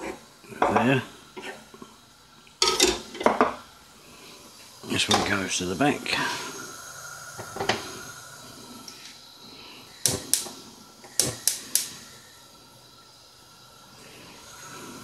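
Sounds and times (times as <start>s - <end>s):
cookware clicking and knocking: 2.6s - 3.6s.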